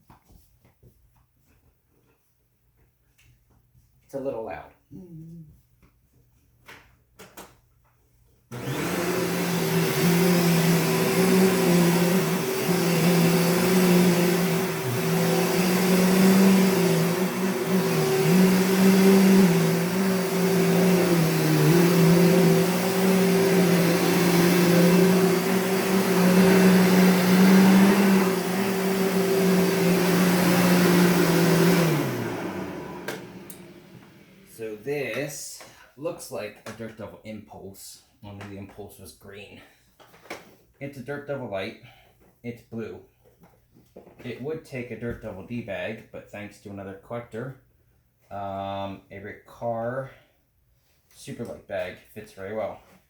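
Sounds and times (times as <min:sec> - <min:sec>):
vacuum cleaner running: 0:08.5 - 0:34.8.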